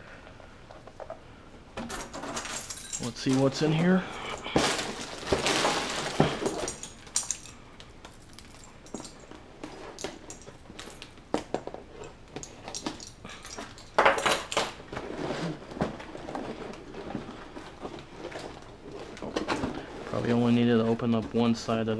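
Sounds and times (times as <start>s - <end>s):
cardboard box scraping: 14.9s - 18.4s.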